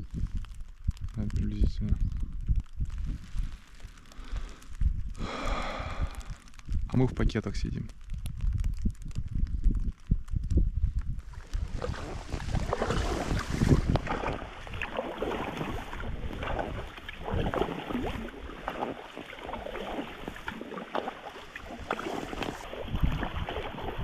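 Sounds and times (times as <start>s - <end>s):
wind noise on microphone: 0.0s - 24.0s
oars dipping and splashing: 2.9s - 4.8s, 11.2s - 24.0s.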